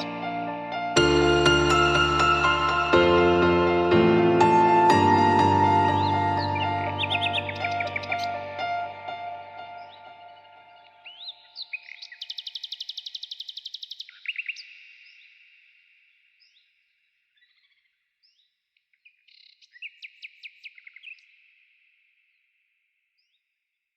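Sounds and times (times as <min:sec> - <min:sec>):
bird chirps: 0:04.4 - 0:22.4
songbirds trilling: 0:05.0 - 0:21.5.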